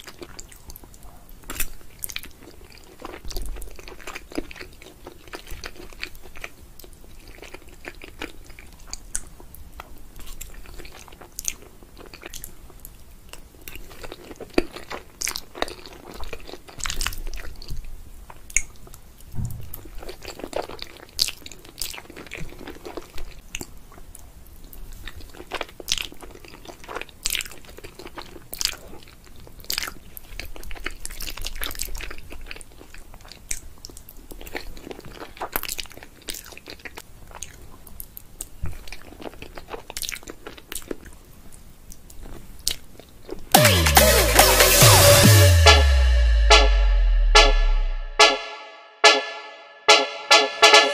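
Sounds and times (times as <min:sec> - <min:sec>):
person chewing food: 0:00.0 - 0:19.0, 0:20.0 - 0:43.5.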